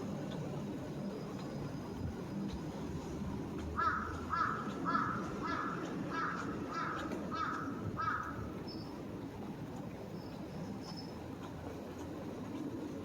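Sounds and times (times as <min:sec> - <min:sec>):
city background hum: 0:00.0 - 0:13.0
crow cawing: 0:03.8 - 0:08.4.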